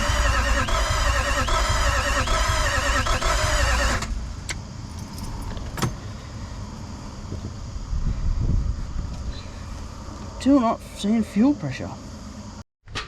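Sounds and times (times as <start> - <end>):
starter motor cranking: 0.0 - 4.2.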